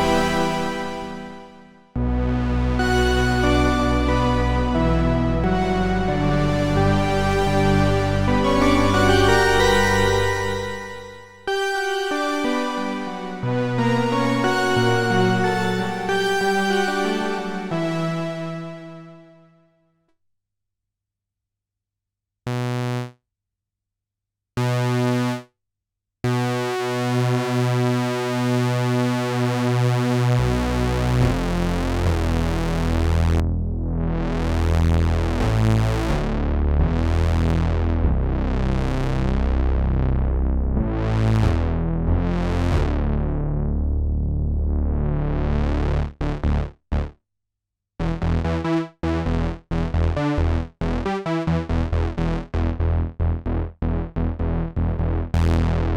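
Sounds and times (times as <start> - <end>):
analog synthesizer playing: 0.0 - 19.4.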